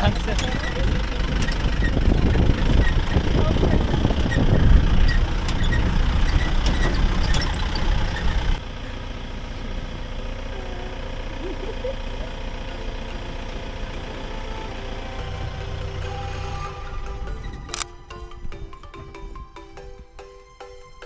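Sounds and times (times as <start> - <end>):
engine idling: 0.0 - 20.1
engine running with rattling clicks: 0.0 - 20.2.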